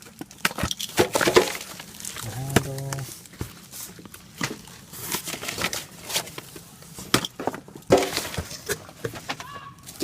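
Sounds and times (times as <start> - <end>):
packaging crinkling: 0.0 - 6.9.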